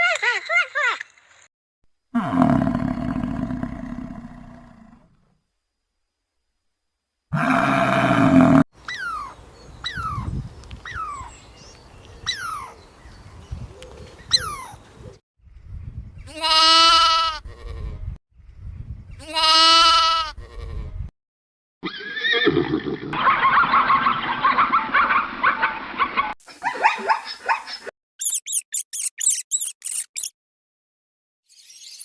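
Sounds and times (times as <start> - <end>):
loud animal call: 7.3 - 9.3
short falling chirps: 28.2 - 30.3.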